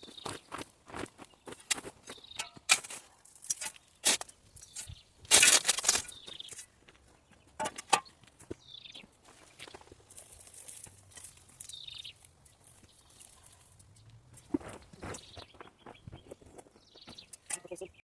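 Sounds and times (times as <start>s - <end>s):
scraping in stony gravel: 0.0s - 7.0s, 7.6s - 17.4s
bird chirping: 1.2s - 2.6s, 6.0s - 9.8s, 11.1s - 18.0s.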